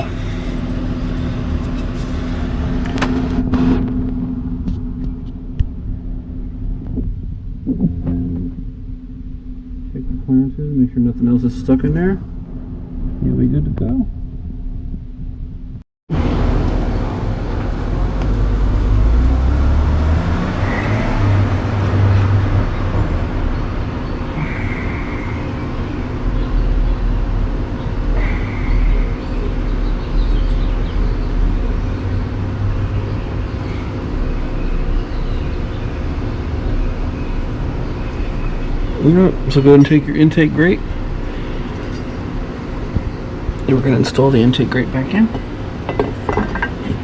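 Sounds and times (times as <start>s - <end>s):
traffic noise: 0.0s - 8.6s, 16.1s - 47.0s
vehicle engine rumbling: 0.0s - 47.0s.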